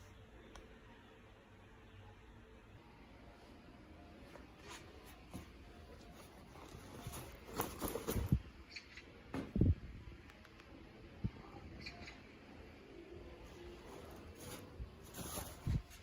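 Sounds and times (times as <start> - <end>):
light rustling: 4.6 - 8.4, 13.6 - 16.0.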